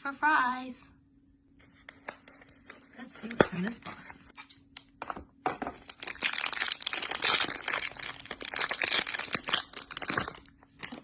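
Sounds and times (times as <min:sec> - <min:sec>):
packaging crinkling: 0:05.8 - 0:11.0.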